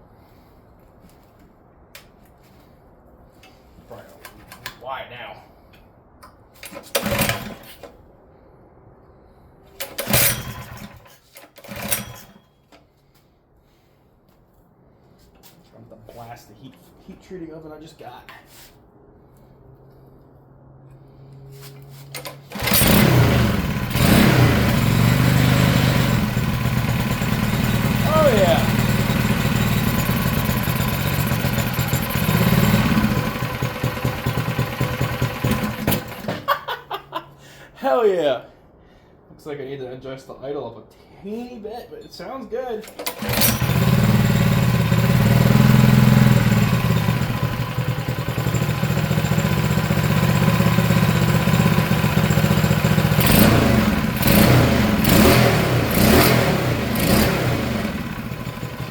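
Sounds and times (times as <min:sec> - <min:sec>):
small engine pull-start: 0:06.6 - 0:08.0, 0:09.8 - 0:12.6, 0:22.0 - 0:36.4, 0:42.9 - 0:58.9.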